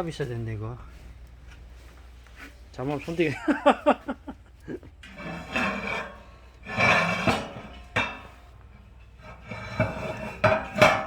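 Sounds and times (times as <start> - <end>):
metal scraping on metal: 5.0 - 11.0.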